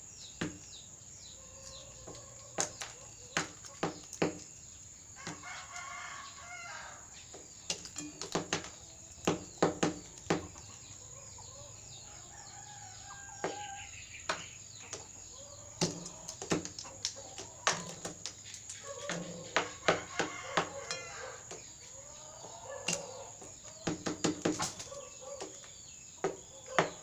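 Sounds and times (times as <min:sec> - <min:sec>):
rooster crowing: 0:05.2 - 0:07.2, 0:11.1 - 0:14.1, 0:18.9 - 0:23.4.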